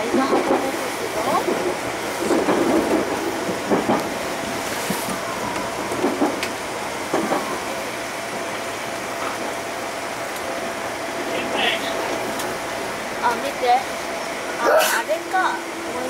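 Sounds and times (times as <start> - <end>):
wheels clacking over rail joints: 0.0 - 4.2, 4.8 - 7.6.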